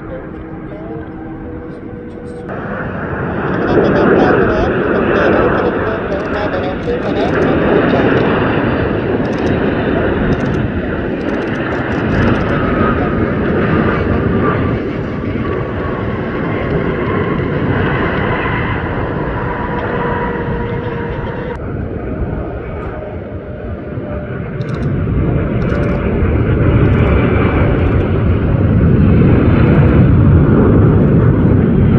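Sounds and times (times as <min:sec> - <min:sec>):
jet airliner engine noise: 0:00.0 - 0:31.9
whining jet tones: 0:00.0 - 0:31.9.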